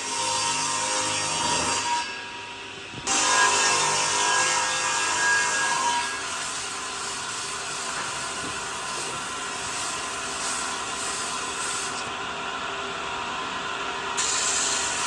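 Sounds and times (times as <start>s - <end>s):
power tool hissing: 3.1s - 12.1s, 14.2s - 15.0s.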